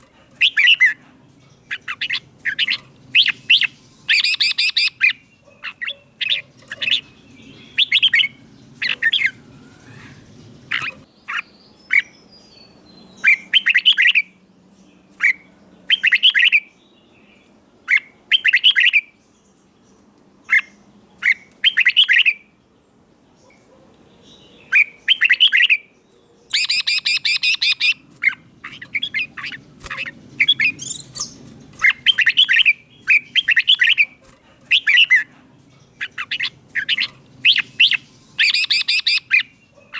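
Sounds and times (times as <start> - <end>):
bird whistling short phrases: 37.5 - 39.4.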